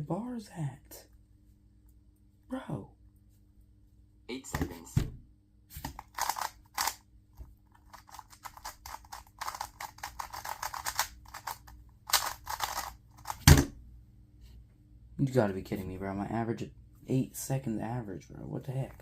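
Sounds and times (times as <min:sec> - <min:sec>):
plastic puzzle cube clicking: 0:05.9 - 0:07.0, 0:07.8 - 0:13.5.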